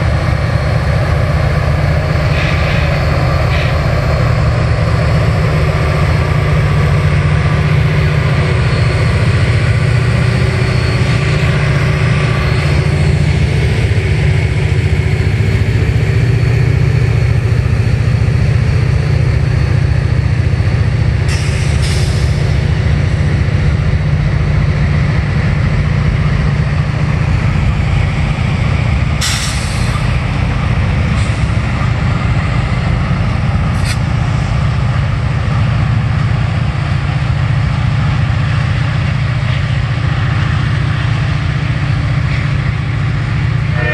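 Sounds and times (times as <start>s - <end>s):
diesel locomotive engine drone: 0.0s - 43.9s
train cars rumbling: 0.0s - 43.9s
air brake hissing bursts: 21.3s - 22.4s, 29.2s - 30.1s.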